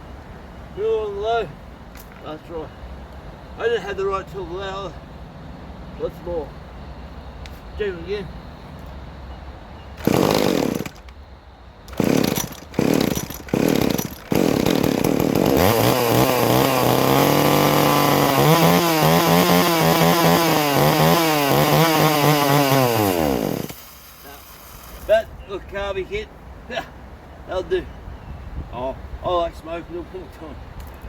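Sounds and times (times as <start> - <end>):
chainsaw engine running: 10.0 - 11.0, 11.9 - 25.1.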